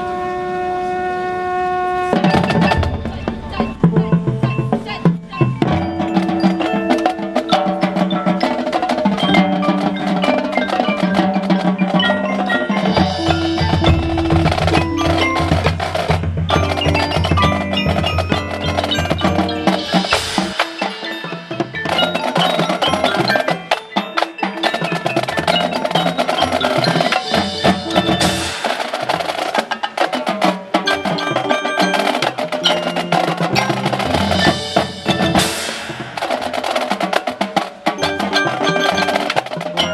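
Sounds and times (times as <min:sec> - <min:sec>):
drums: 0:01.9 - 0:39.9
sustained low notes: 0:02.2 - 0:05.8
mallet keyboards ringing: 0:02.2 - 0:39.9.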